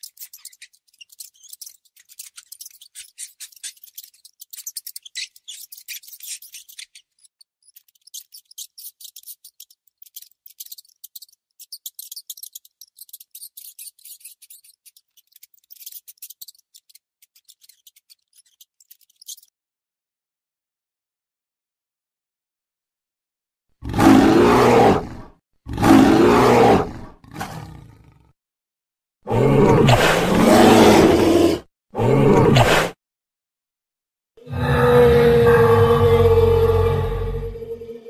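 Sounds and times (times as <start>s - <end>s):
mouse scratchy clicking: 0.0s - 19.5s.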